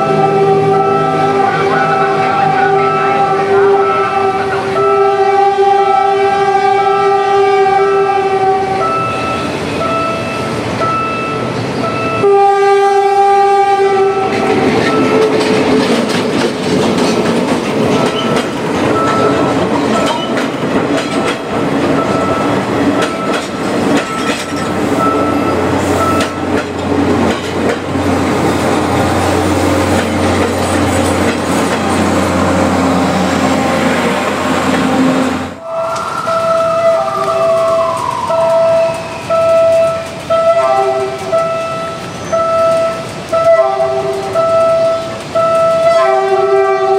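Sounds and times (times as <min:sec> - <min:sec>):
train horn blasts: 0:00.0 - 0:09.6, 0:12.2 - 0:15.7, 0:32.0 - 0:46.9
train wheels clicking over joints: 0:14.2 - 0:35.2, 0:37.1 - 0:45.9.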